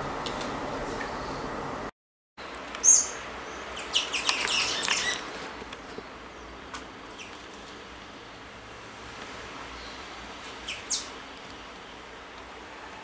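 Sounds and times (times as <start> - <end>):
small birds chirping: 2.5 - 8.4, 9.6 - 12.2.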